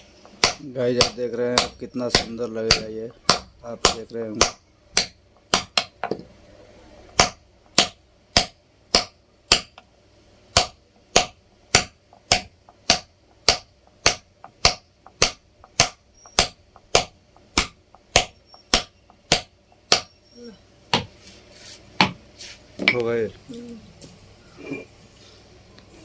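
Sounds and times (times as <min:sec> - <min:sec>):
hammer striking a chisel: 0:00.2 - 0:06.3, 0:07.1 - 0:09.9, 0:10.5 - 0:20.2, 0:22.0 - 0:22.2.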